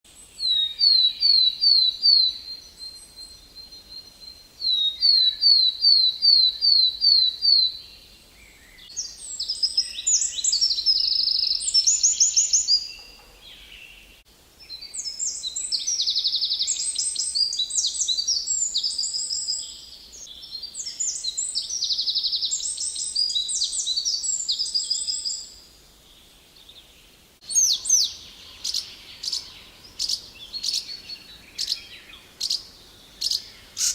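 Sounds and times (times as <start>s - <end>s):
songbirds singing: 0.1s - 33.9s
sharp bird chirps: 27.4s - 33.9s.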